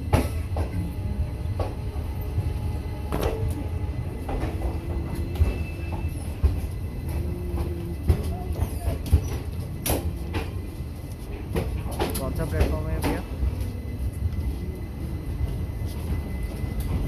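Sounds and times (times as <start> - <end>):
train wheels rumbling on rail: 0.0 - 17.0
rail joints knocking: 3.1 - 13.6.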